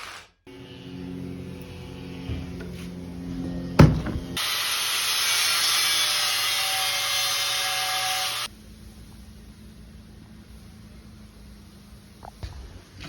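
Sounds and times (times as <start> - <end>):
welder arc hissing and sizzling: 4.4 - 9.4.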